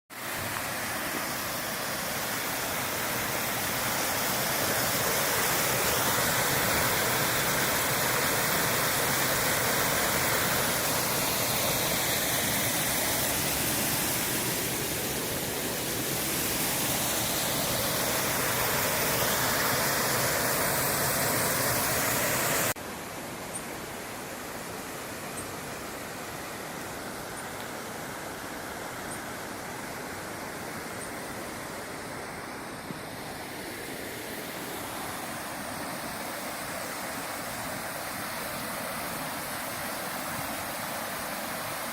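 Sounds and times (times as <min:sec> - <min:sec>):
waterfall roaring: 0:00.1 - 0:22.8.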